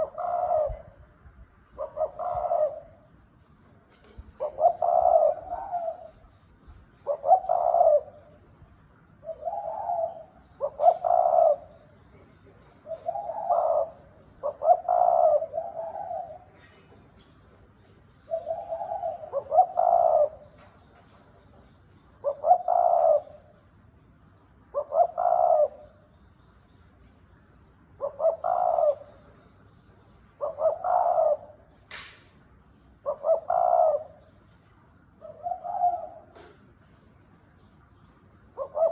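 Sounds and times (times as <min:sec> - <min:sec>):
dove cooing: 0:00.0 - 0:03.3, 0:04.0 - 0:06.4, 0:07.0 - 0:08.6, 0:09.2 - 0:17.1, 0:18.2 - 0:21.6, 0:22.2 - 0:23.6, 0:24.7 - 0:26.1, 0:27.9 - 0:29.6, 0:30.3 - 0:31.7, 0:33.0 - 0:34.4, 0:35.2 - 0:36.7, 0:38.5 - 0:38.9
sharp click: 0:31.9 - 0:32.4.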